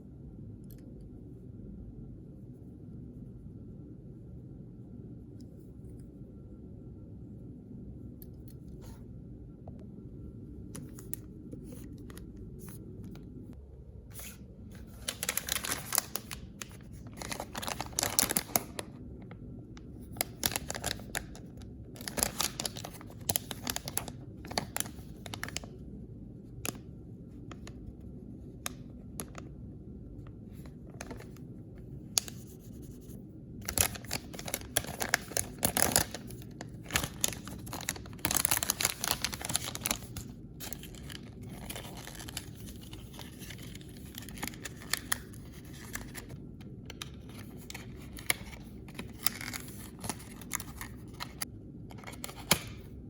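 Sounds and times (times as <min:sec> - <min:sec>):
steady low hum: 0:00.0 - 0:53.0
plastic packaging torn and crinkled: 0:14.2 - 0:19.0, 0:20.1 - 0:25.7, 0:33.6 - 0:52.8.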